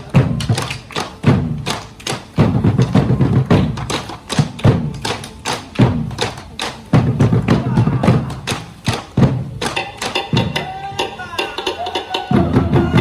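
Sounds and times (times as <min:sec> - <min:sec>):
deep drum thumps: 0:00.0 - 0:05.2, 0:05.8 - 0:11.1
sharp wooden knocks: 0:00.0 - 0:11.8.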